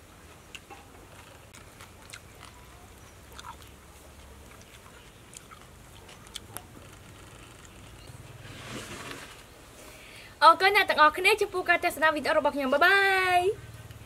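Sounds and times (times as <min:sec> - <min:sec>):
person chewing: 0:00.5 - 0:08.0
wet mouth clicks: 0:03.3 - 0:06.7.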